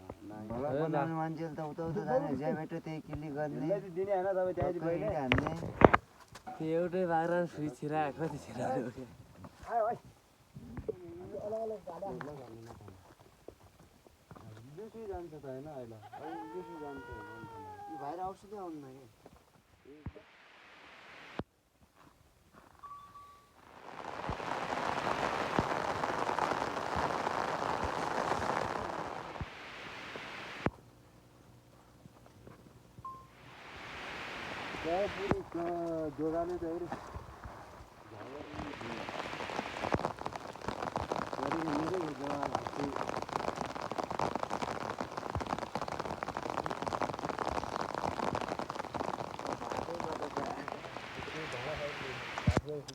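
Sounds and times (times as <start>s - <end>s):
raindrop ticks: 4.6s - 6.0s, 23.9s - 30.7s, 33.9s - 37.2s, 37.8s - 52.9s
rain falling: 14.7s - 19.0s, 23.6s - 30.7s, 33.2s - 52.9s.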